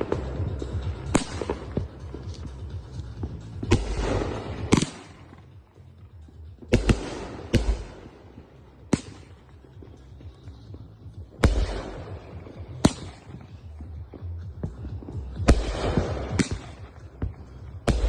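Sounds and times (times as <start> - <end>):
firework bangs: 0.0 - 2.5, 3.2 - 5.4, 11.3 - 13.5, 15.5 - 18.0.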